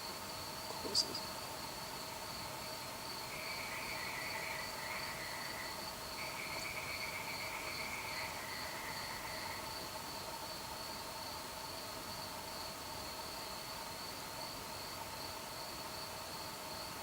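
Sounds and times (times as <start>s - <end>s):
frogs calling: 0.0s - 2.5s, 3.1s - 9.9s
insects trilling: 0.0s - 17.0s.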